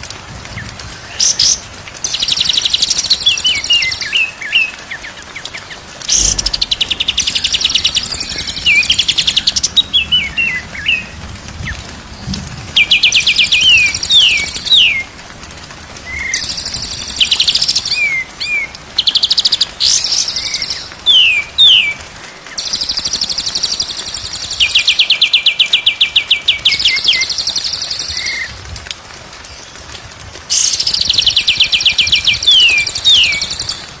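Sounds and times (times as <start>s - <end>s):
bird singing trills and whistles: 6.1s - 11.1s, 30.5s - 34.0s.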